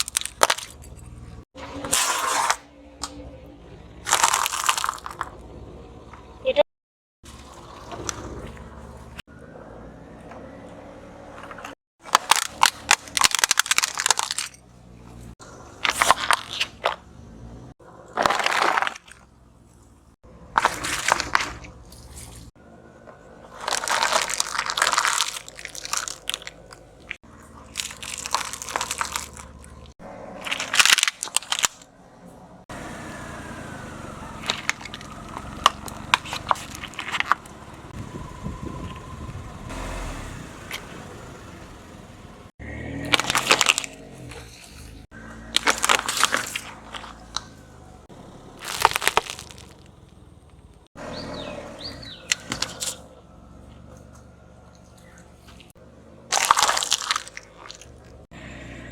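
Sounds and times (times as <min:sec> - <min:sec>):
objects crunching under tyre: 0:00.0 - 0:06.4, 0:07.2 - 0:58.9
sharp crackles: 0:23.5 - 0:31.9, 0:33.4 - 0:37.9, 0:43.0 - 0:51.2, 0:54.1 - 0:58.3.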